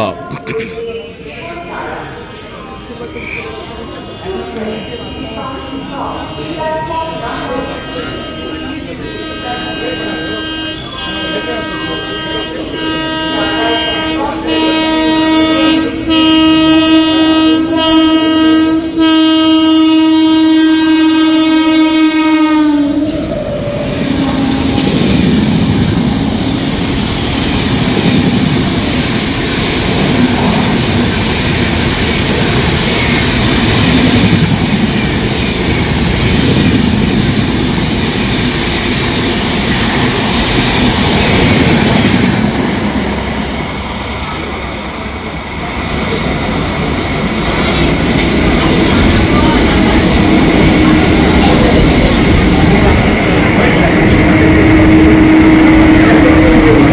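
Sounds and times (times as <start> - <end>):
train coaches rushing by: 0.0 - 56.9
locomotive horn blast: 3.2 - 27.2, 52.6 - 56.9.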